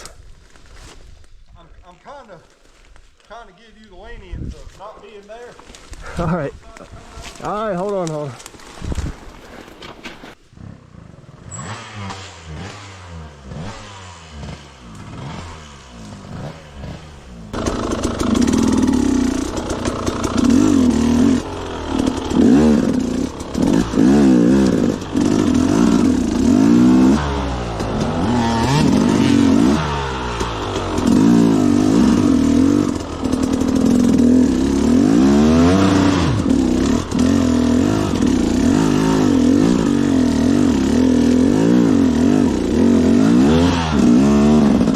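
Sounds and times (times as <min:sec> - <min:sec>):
dirt bike engine revving: 0:10.6 - 0:44.9.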